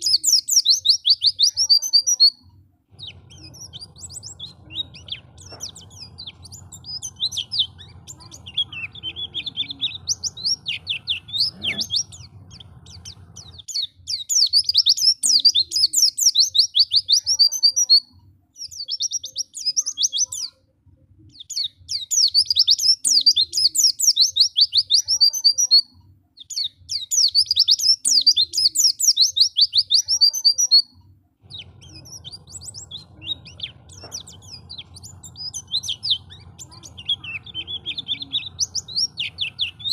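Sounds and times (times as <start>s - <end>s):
bird twittering chirps: 0.0s - 20.6s, 21.3s - 39.9s
faint low hum: 0.0s - 23.8s, 30.2s - 39.9s.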